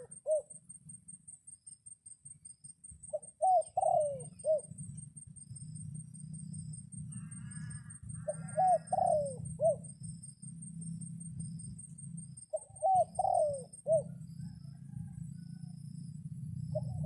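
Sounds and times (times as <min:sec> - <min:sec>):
dove cooing: 0:00.0 - 0:00.5, 0:03.1 - 0:04.8, 0:07.1 - 0:10.0, 0:12.5 - 0:15.7, 0:16.6 - 0:17.0
steady low rumble: 0:04.6 - 0:12.6, 0:14.0 - 0:17.0.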